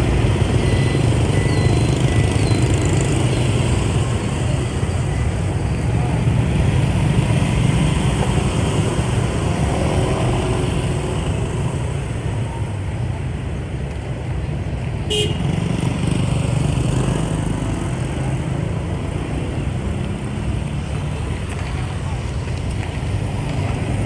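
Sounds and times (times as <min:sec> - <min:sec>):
motorbike engine and road rumble: 0:00.0 - 0:24.0
vehicle horn toot: 0:15.1 - 0:15.6.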